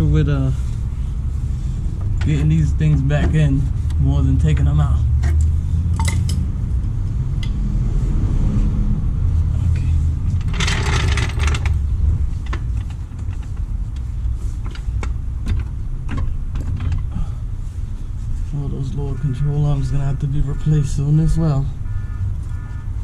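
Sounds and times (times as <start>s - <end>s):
steady low rumble: 0.0s - 23.0s
metal tools clinking: 5.9s - 6.4s.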